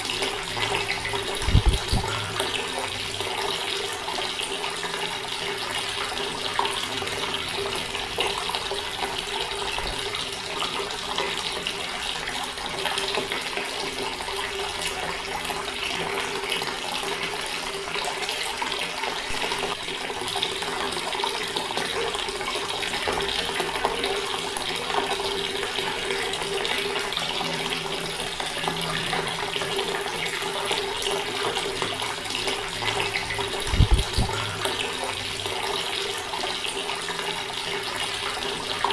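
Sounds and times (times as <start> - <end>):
water running from a tap: 0.0 - 38.9.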